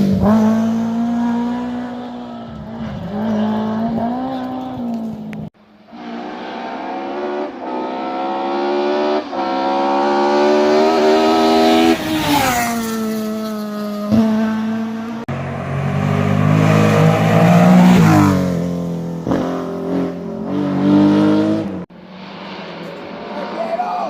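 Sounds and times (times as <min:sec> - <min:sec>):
rally car engines revving: 0:00.0 - 0:24.0
car accelerating past: 0:05.9 - 0:24.0.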